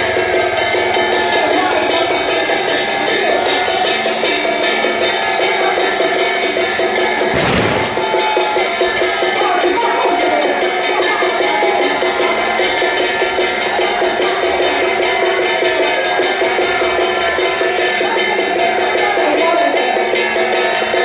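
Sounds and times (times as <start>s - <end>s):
loud cymbal crash: 7.3s - 8.2s.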